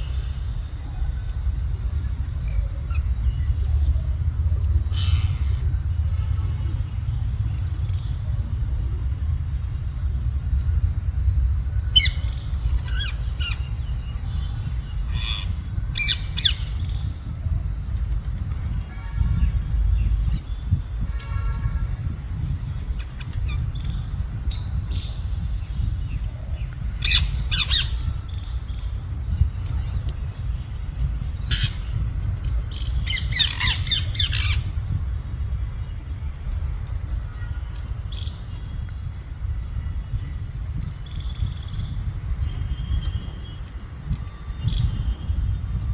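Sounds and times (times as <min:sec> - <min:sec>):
steady low rumble: 0:00.0 - 0:45.9
parrots squawking: 0:33.0 - 0:34.6.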